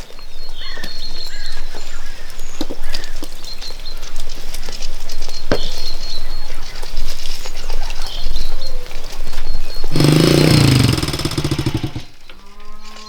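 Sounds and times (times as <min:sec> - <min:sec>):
cow lowing: 0:09.9 - 0:12.1.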